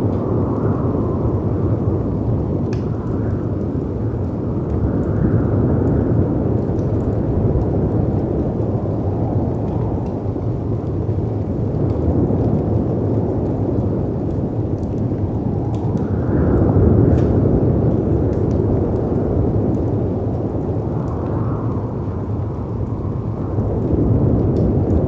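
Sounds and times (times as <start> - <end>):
fireplace crackling: 0.0 - 5.2
wind rumble: 0.0 - 25.0.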